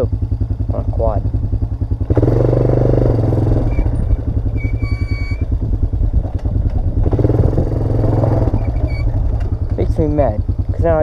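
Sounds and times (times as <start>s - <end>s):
atv engine running: 0.0s - 11.0s
high-pitched squeal: 3.4s - 5.7s, 8.0s - 9.4s.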